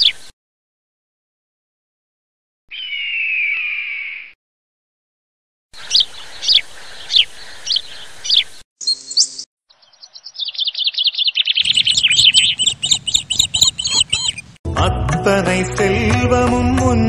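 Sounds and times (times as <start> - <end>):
fast dense bird twittering: 2.7 - 4.3, 5.8 - 14.6
rising bird whistle: 2.7 - 4.4, 8.8 - 14.4.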